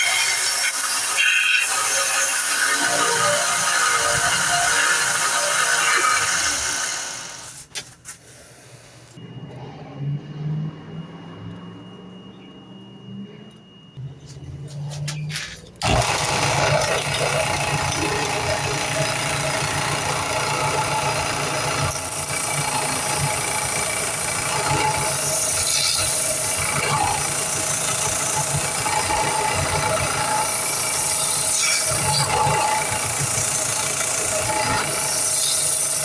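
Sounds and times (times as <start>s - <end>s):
power sander grinding wood: 0.0s - 7.6s, 15.8s - 36.0s.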